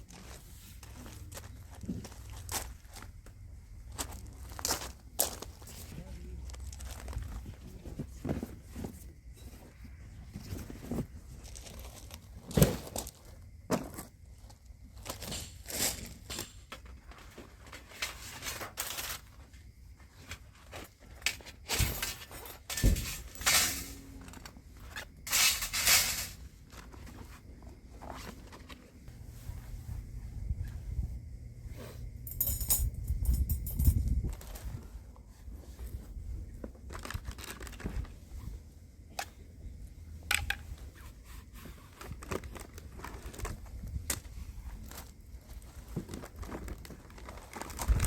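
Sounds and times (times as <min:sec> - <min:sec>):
clicks and crinkling of handling: 0:00.0 - 0:08.9, 0:35.8 - 0:38.5, 0:40.3 - 0:48.0
rustling and crinkling: 0:00.0 - 0:32.5, 0:33.1 - 0:48.0.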